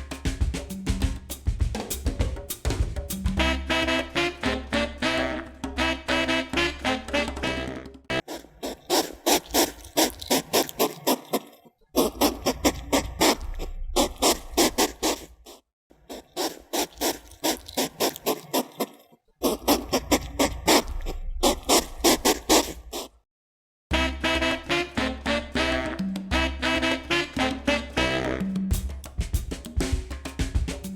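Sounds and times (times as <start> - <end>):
animal rapid pulsed calls: 8.2 - 23.2.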